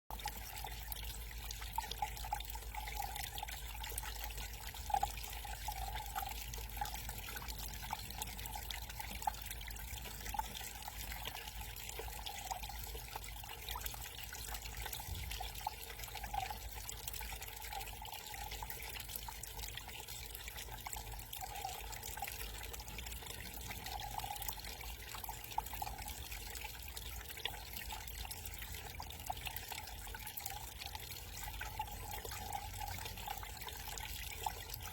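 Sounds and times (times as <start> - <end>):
garden waterfall trickling: 0.1 - 34.9
water drips and splashes: 0.1 - 34.9.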